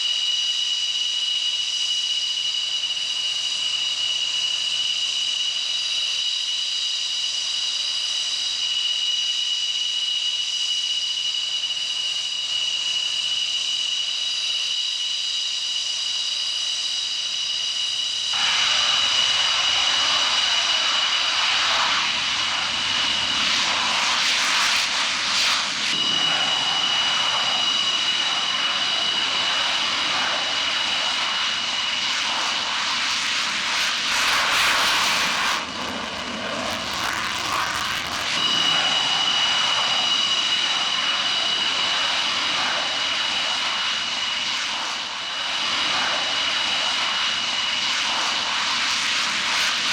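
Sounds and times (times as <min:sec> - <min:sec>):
jet engine whine: 0:00.0 - 0:49.9
loud rushing noise: 0:18.4 - 0:42.3.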